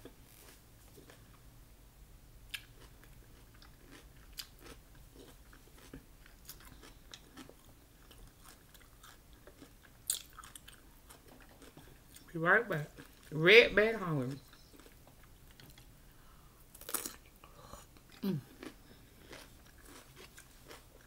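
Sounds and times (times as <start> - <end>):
person chewing: 2.5 - 12.3, 14.3 - 16.0, 16.7 - 21.0.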